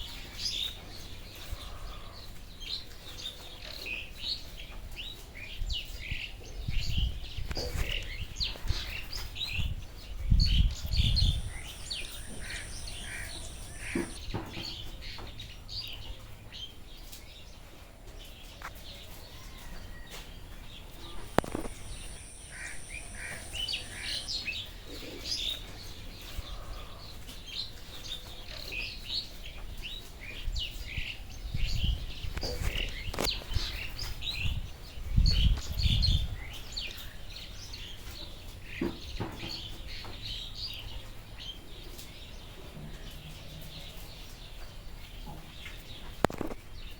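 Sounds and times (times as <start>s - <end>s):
birds chirping and calling: 5.8s - 16.7s, 20.8s - 46.9s
high insect-like buzz: 10.9s - 14.2s, 21.1s - 24.5s.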